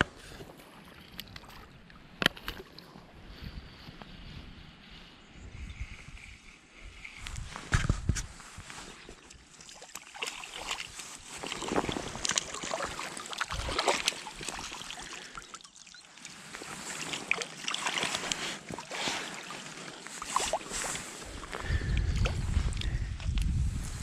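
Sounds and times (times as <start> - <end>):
water splashing and trickling: 0.3 - 3.0, 8.5 - 23.5.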